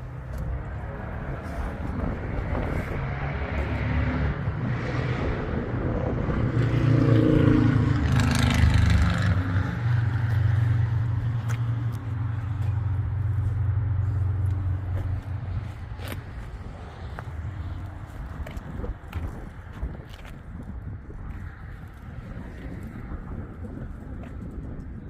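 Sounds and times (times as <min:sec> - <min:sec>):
car engine droning: 0:00.0 - 0:24.2.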